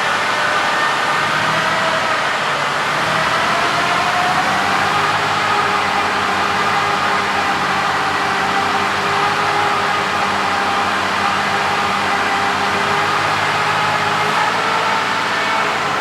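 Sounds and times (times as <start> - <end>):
truck diesel engine idling: 3.9 - 16.0.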